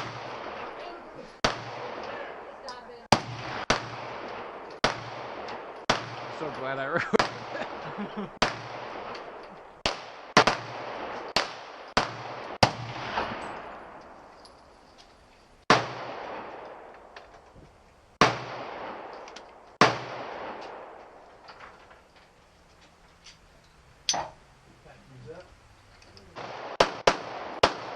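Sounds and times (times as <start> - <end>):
gunshots echoing: 0.0 - 14.3, 15.7 - 17.2, 18.2 - 21.4, 26.3 - 27.9.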